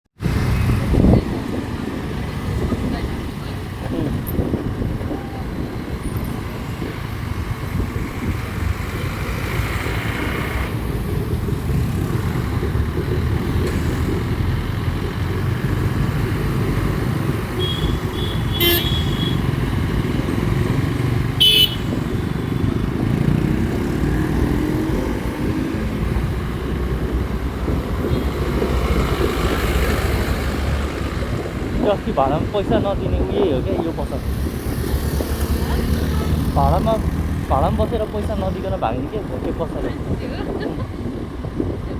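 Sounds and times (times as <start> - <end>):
wind and road rumble: 0.2 - 41.9
vehicle horn toots: 17.6 - 19.5, 21.4 - 22.6.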